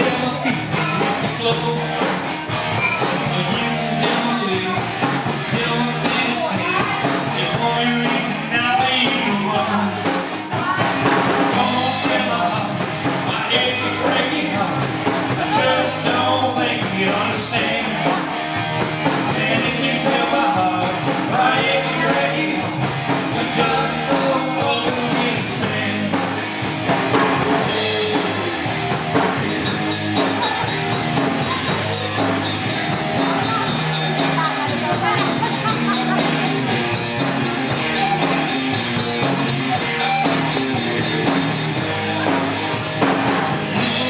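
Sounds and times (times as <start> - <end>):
live rock and roll band: 0.0 - 44.0.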